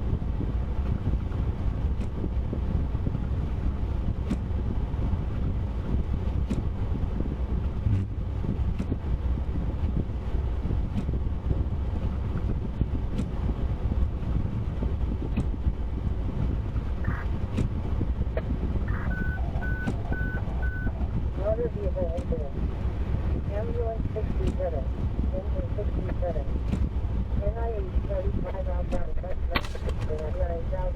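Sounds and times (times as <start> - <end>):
car road and engine rumble: 0.0 - 30.9
short beeps: 17.0 - 17.3, 18.9 - 21.1.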